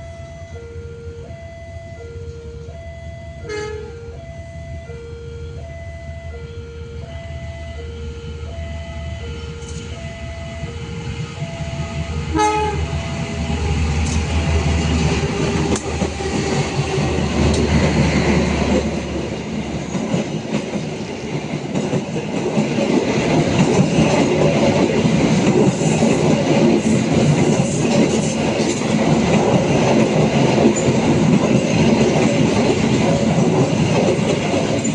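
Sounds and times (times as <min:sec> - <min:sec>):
level crossing two-tone signal: 0:00.0 - 0:14.9
diesel train engine rumble: 0:00.0 - 0:34.9
train horn blast: 0:03.4 - 0:04.2, 0:07.7 - 0:17.7
train carriages rattling past: 0:11.0 - 0:34.9.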